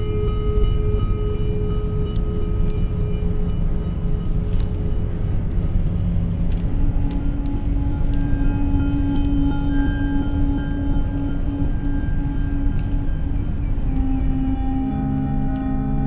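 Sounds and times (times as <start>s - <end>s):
low rumble: 0.0s - 16.0s
synthesizer drone: 0.0s - 16.0s.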